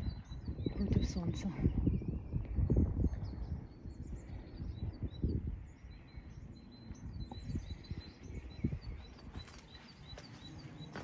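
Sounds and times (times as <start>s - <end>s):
songbirds chirping and singing: 0.0s - 11.0s.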